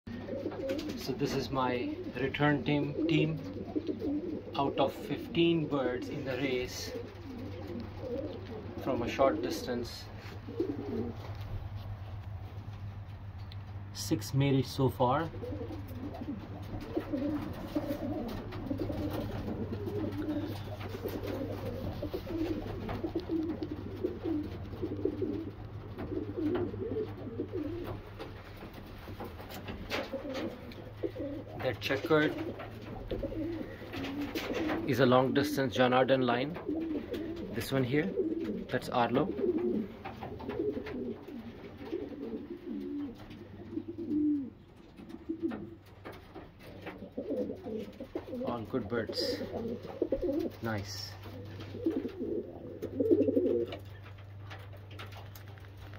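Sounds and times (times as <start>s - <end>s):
pigeons cooing: 0.1s - 13.9s, 15.0s - 55.9s
steady low hum: 0.1s - 55.9s.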